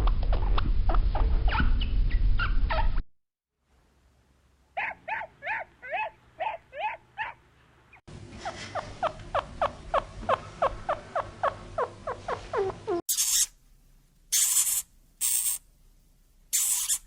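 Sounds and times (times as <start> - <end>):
animal high-pitched calls: 4.8 - 7.4, 8.4 - 13.5.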